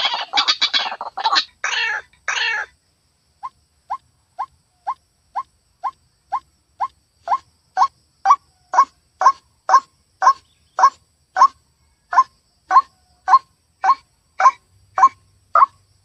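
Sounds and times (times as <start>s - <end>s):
waterhen calling: 0.0s - 2.7s.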